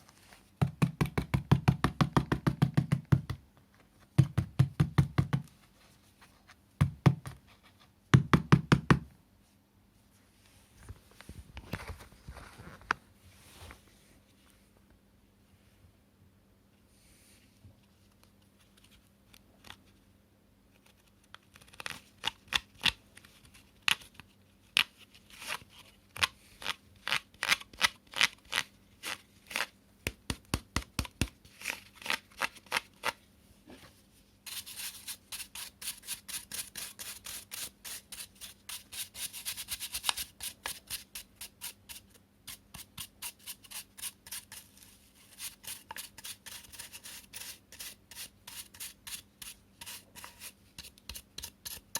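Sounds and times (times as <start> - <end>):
hands scraping plastic parts: 34.5 - 51.9.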